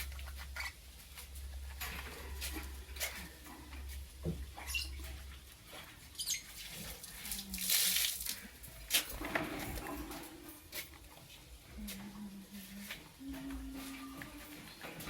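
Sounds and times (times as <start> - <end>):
lovebirds chirping: 4.6 - 5.4, 6.1 - 6.7.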